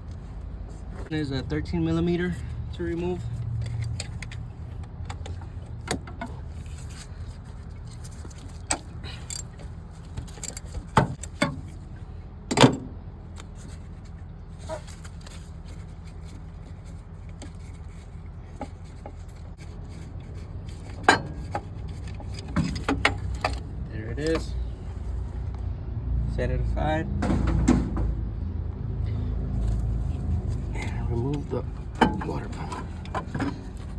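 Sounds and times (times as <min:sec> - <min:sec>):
metal tools clinking on engine: 0:01.2 - 0:12.9, 0:14.6 - 0:24.7, 0:29.6 - 0:33.9.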